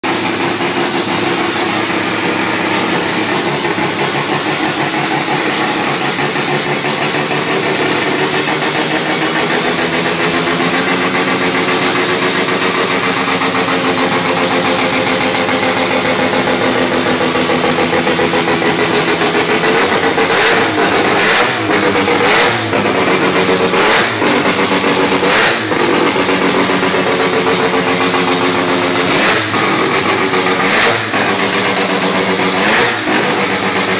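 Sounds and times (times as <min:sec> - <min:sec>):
engine revs with sharp crack: 0:00.0 - 0:33.9
rotary engine idling loudly: 0:00.0 - 0:33.9.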